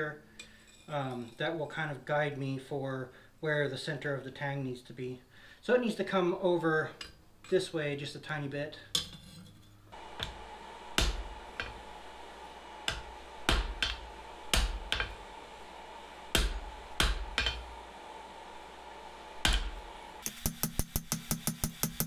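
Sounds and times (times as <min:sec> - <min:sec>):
steady hum: 0:08.4 - 0:22.0
hammer striking steel on anvil: 0:10.2 - 0:11.9, 0:12.8 - 0:15.2, 0:16.3 - 0:17.8, 0:19.4 - 0:22.0.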